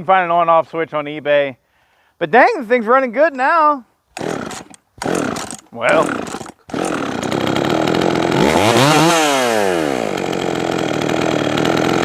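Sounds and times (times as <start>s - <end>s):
man speaking: 2.2s - 3.9s, 5.7s - 6.2s
chainsaw revving: 4.1s - 12.0s.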